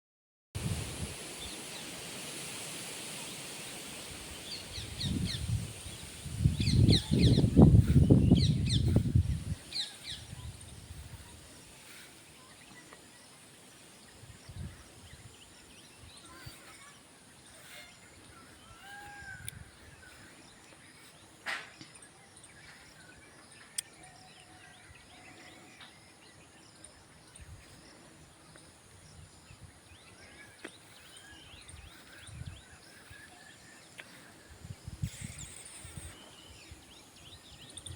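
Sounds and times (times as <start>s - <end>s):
steady hiss: 0.6s - 18.4s.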